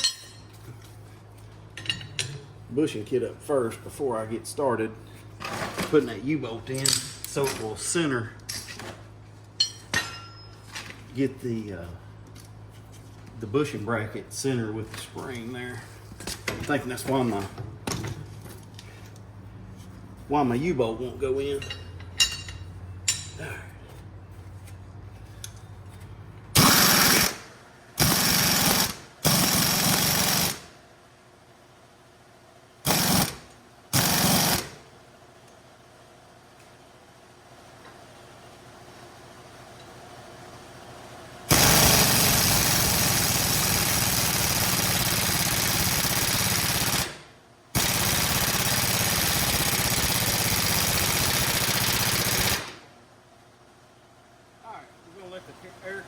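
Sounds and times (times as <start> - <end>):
pneumatic air tool hammering: 26.6 - 30.6, 32.8 - 34.8, 41.5 - 47.2.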